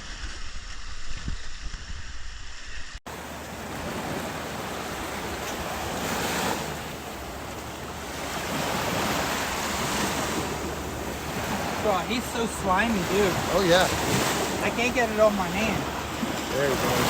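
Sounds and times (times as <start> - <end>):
wind buffeting microphone: 0.0 - 17.0
surf washing onto beach: 3.1 - 17.0.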